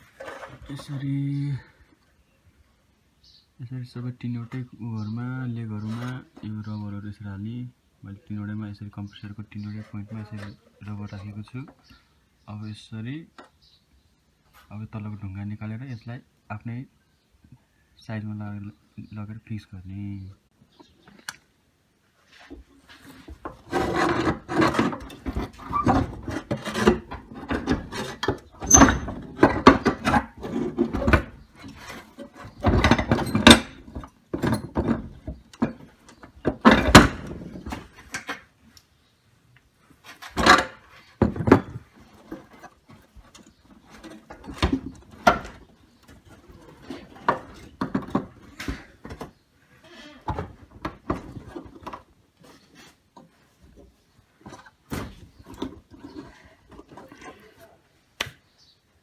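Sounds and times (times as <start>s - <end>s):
scraping and rubbing: 0.0s - 1.4s, 22.1s - 38.6s, 39.8s - 57.6s.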